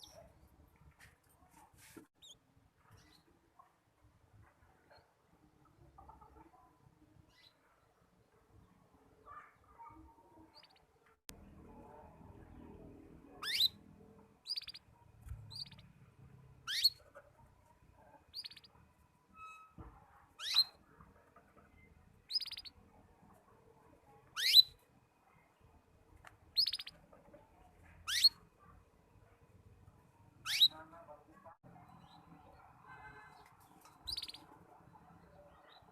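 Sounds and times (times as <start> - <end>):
canary chirping: 0.0 - 0.4, 2.2 - 3.3, 10.5 - 23.4, 24.2 - 24.9, 26.4 - 28.7, 30.3 - 31.1, 31.8 - 35.9.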